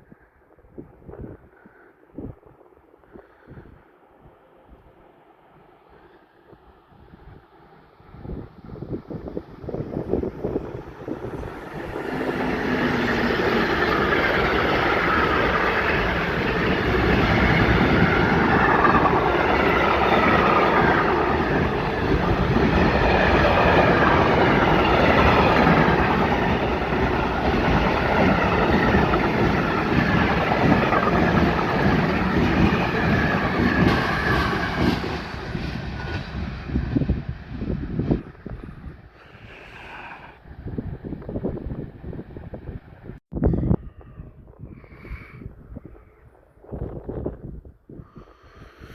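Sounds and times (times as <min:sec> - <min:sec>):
freight train wheels clattering: 0:09.9 - 0:37.3.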